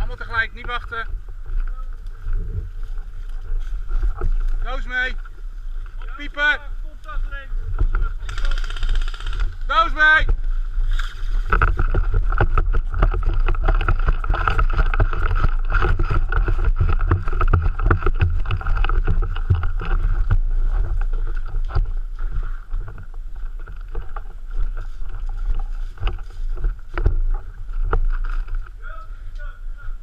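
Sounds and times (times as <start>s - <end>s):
wind and movement rumble: 0.0s - 30.0s
rustles and knocks: 10.2s - 28.8s.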